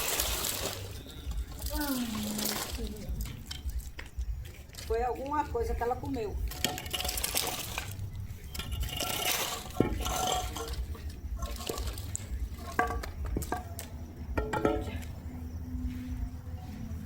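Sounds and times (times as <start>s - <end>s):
liquid pouring and splashing: 0.0s - 3.9s, 6.5s - 8.0s, 8.6s - 12.8s.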